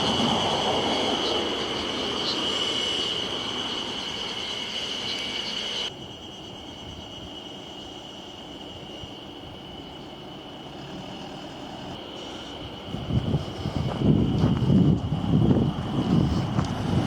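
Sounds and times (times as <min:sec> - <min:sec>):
freight wagons rumbling: 0:00.0 - 0:05.9, 0:08.5 - 0:17.0
train wheels squealing: 0:00.0 - 0:17.0.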